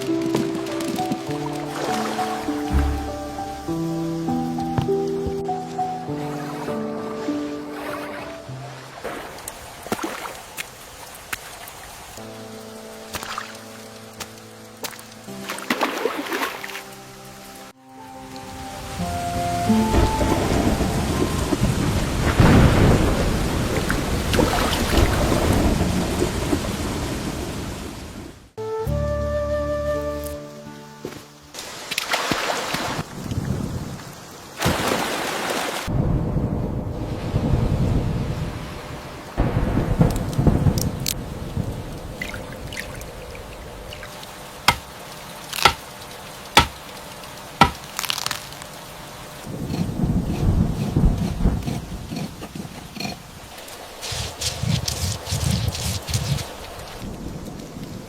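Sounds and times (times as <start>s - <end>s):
thunder rumble: 0.0s - 5.5s, 18.8s - 28.6s, 33.0s - 34.4s, 35.8s - 44.1s, 49.4s - 58.0s
heavy rain: 0.0s - 15.6s, 16.8s - 28.6s, 31.6s - 58.0s
water drips: 0.0s - 16.9s, 40.0s - 48.8s.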